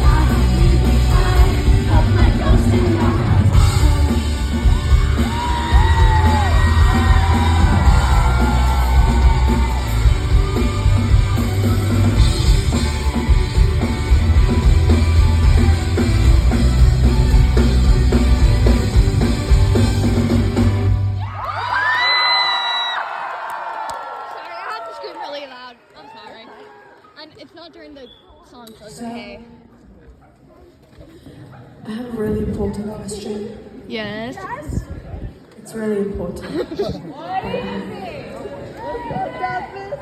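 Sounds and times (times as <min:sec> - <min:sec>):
rock band playing: 0:00.0 - 0:21.2.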